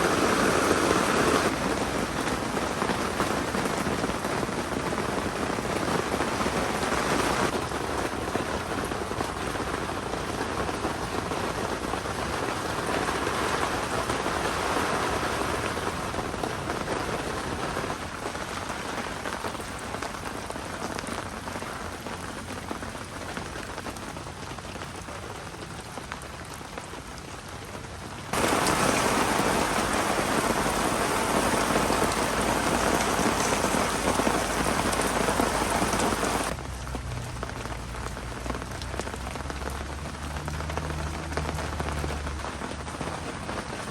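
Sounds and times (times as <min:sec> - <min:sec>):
heavy rain pouring: 0:00.0 - 0:43.9.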